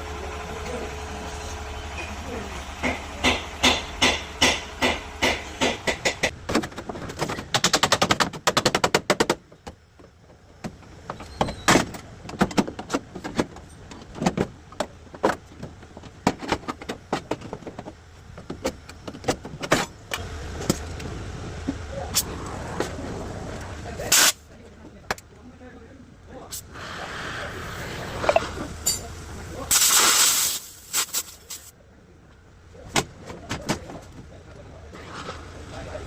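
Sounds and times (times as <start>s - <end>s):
low hum: 20.2s - 24.0s.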